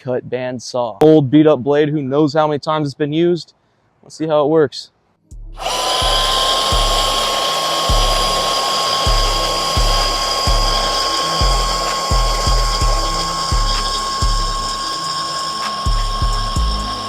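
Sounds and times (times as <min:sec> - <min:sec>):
bandsaw whining as it cuts: 0:05.6 - 0:17.0.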